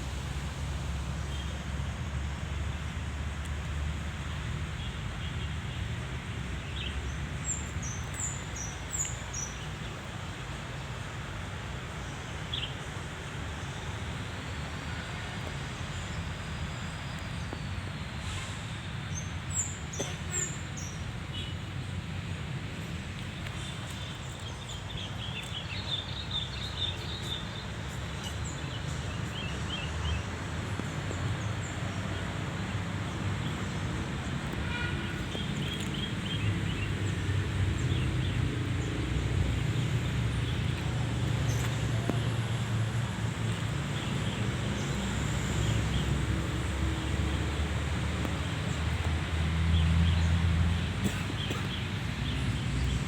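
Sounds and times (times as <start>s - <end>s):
low rumble of wind or traffic: 0.0s - 53.0s
small birds chirping: 33.4s - 53.0s.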